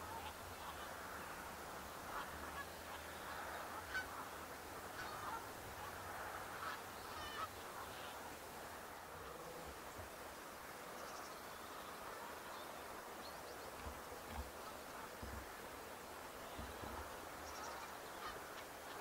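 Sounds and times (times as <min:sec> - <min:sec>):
geese honking: 0:02.1 - 0:04.3, 0:04.9 - 0:08.2, 0:16.4 - 0:19.0.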